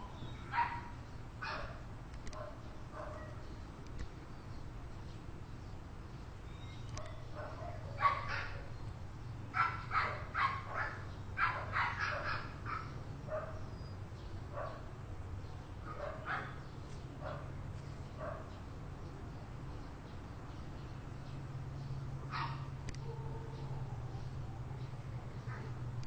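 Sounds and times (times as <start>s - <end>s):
steady low hum: 0.0s - 26.0s
dog barking: 0.5s - 3.4s, 7.0s - 8.7s, 9.6s - 13.6s, 14.6s - 14.8s, 15.9s - 16.6s, 17.2s - 17.5s, 18.2s - 18.5s, 22.3s - 24.2s.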